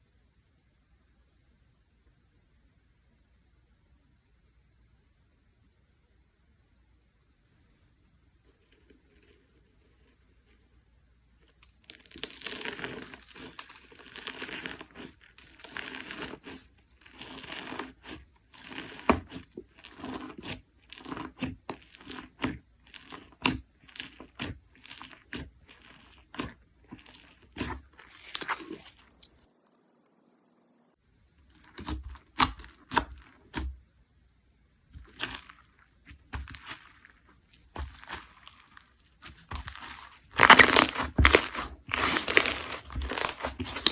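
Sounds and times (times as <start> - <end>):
slime crackling and popping: 11.4 - 29.5, 31.4 - 33.7, 35.0 - 43.9.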